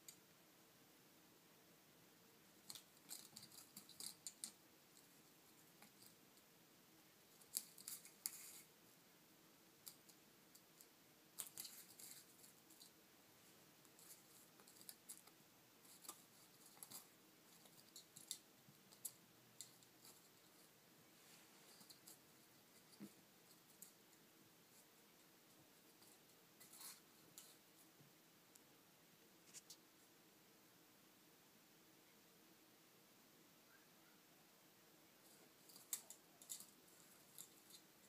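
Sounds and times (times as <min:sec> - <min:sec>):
sharp clicks and scratchy ticks: 0:02.5 - 0:06.5, 0:07.3 - 0:08.7, 0:09.8 - 0:13.0, 0:13.8 - 0:20.8, 0:21.7 - 0:28.7, 0:35.2 - 0:38.0.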